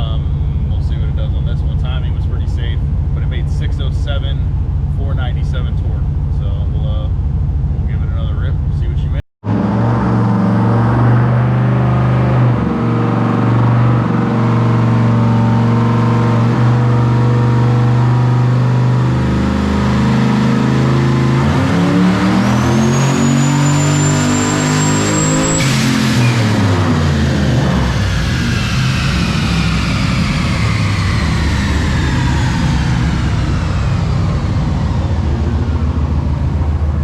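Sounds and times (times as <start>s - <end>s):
car engine revving: 0.0s - 37.0s
high turbo whistle: 22.3s - 36.9s.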